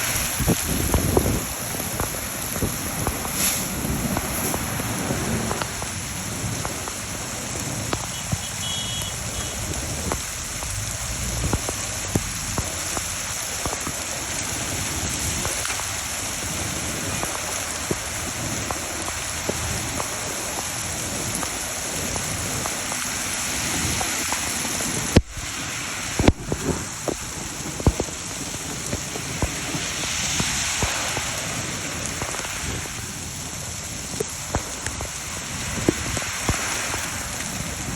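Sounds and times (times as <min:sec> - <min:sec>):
rain falling: 0:00.0 - 0:37.9.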